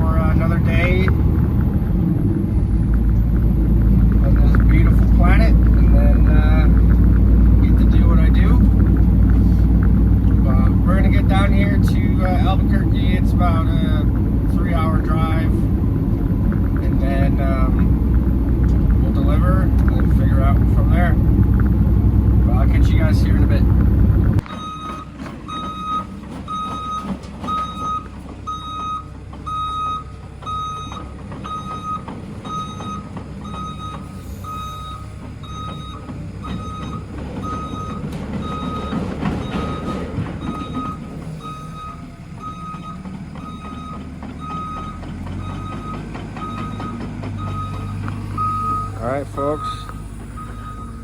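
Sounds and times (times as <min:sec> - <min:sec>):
diesel engine running: 0:00.0 - 0:51.0
backup alarm beeping: 0:24.4 - 0:51.0.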